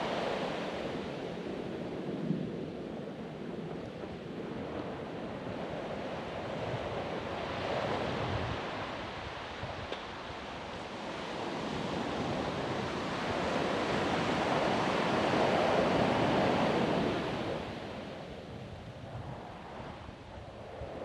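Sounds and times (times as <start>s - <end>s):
ocean surf breaking on beach: 0.0s - 18.7s.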